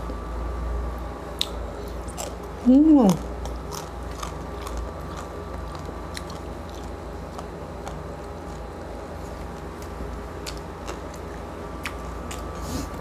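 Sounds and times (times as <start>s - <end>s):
person chewing: 1.4s - 13.0s
crackling crunches: 3.2s - 12.6s.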